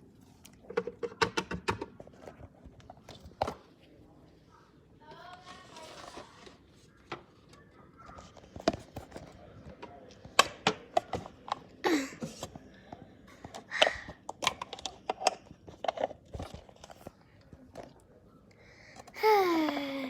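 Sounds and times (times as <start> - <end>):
plastic toys clicking: 13.4 - 17.0.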